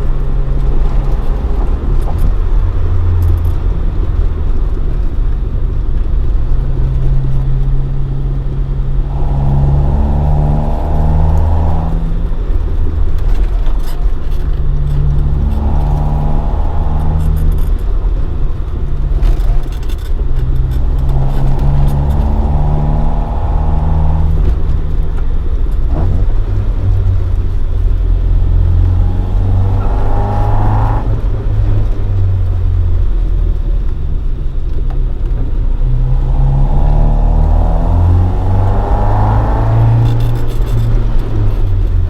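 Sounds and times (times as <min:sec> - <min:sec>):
car engine revving: 0:00.0 - 0:42.0
clatter of clicks: 0:11.3 - 0:23.1.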